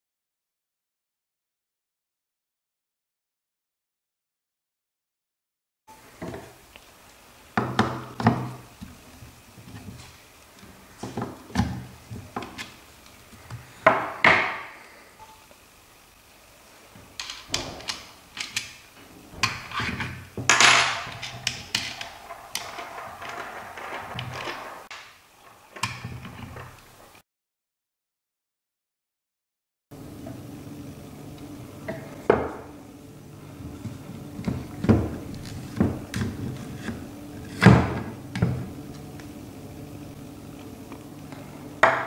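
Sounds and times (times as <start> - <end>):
scraping slides: 19.0 - 26.8
hard parts thunking: 19.1 - 24.9.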